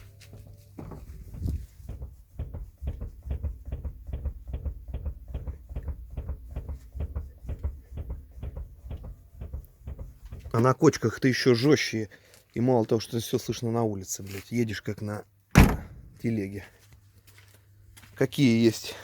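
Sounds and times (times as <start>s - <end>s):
car suspension knocking: 0.8s - 10.7s, 15.6s - 16.2s.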